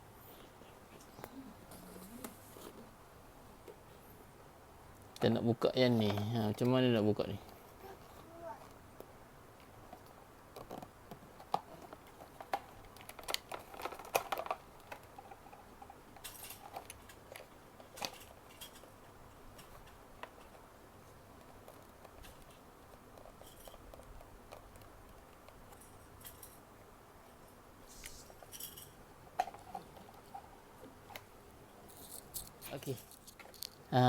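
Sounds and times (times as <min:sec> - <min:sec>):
plastic parts clicking and knocking: 0:09.6 - 0:20.6.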